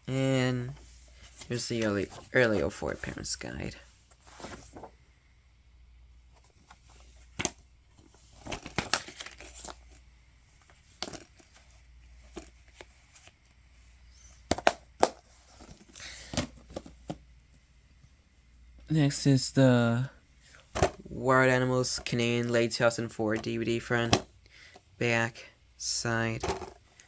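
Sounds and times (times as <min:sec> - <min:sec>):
paper rustling and crinkling: 0:04.1 - 0:05.0, 0:06.4 - 0:10.0
plastic cases clicking and knocking: 0:10.9 - 0:11.6, 0:14.5 - 0:17.2, 0:26.4 - 0:26.8.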